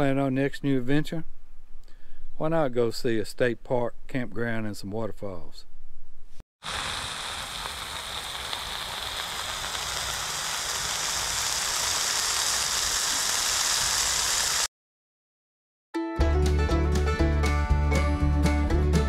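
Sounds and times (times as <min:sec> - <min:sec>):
patties sizzling on a griddle: 0:06.6 - 0:14.7.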